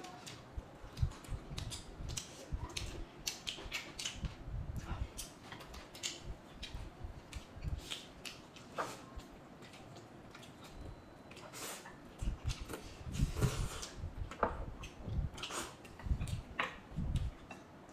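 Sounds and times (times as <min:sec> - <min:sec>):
chewing clicks and crunches: 0:00.2 - 0:04.3.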